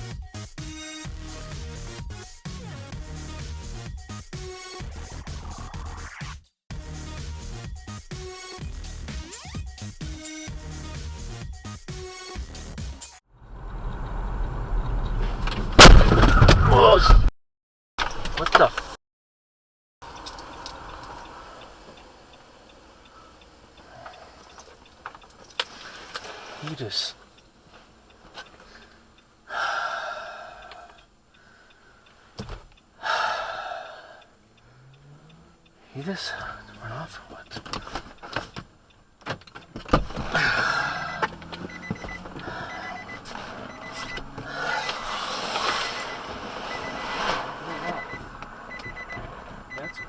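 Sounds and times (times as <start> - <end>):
road and engine hum: 13.2 - 16.5, 20.0 - 50.0
car noise: 13.3 - 16.6, 20.0 - 50.0
turn signal ticking: 13.6 - 15.2, 20.0 - 26.3, 27.1 - 45.1, 45.9 - 50.0
high electronic beeping: 40.3 - 50.0.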